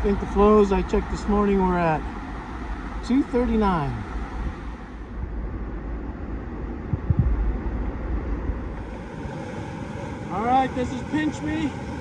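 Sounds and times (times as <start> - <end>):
creek water rushing: 0.0 - 5.1, 8.8 - 12.0
wind buffeting microphone: 3.6 - 11.2
short low knocks: 6.9 - 7.4.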